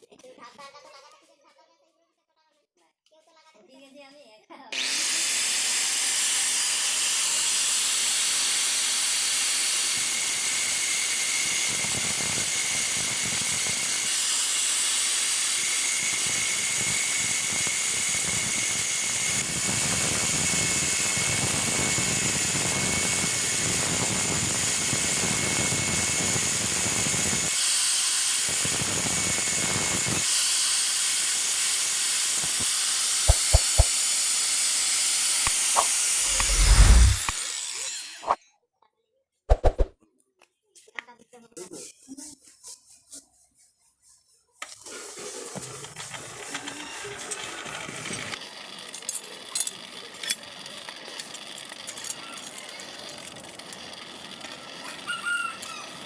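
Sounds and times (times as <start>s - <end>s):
power tool running: 4.7s - 38.4s.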